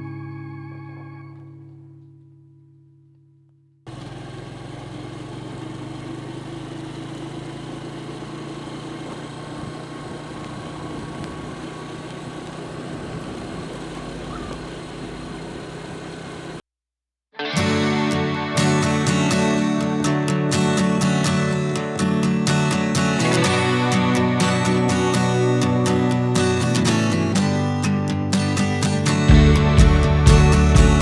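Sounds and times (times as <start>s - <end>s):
road rumble on dirt road: 3.9s - 16.6s, 29.3s - 31.0s
vehicle engine running: 3.9s - 16.6s, 29.2s - 31.0s.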